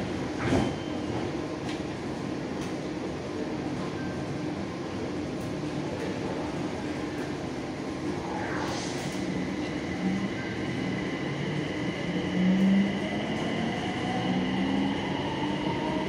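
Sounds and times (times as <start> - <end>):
electric train rumble: 4.9 - 16.0.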